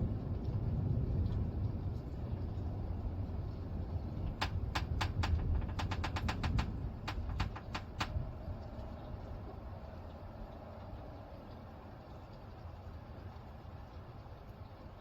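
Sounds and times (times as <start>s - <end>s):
thunder rumbling: 0.0s - 10.2s
sharp irregular ticks: 4.2s - 8.4s.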